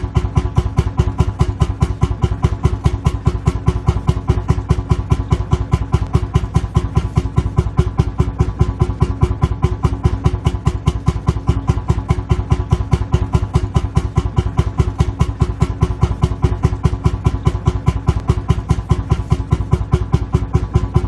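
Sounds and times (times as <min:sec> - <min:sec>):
tractor engine idling: 0:00.0 - 0:21.0.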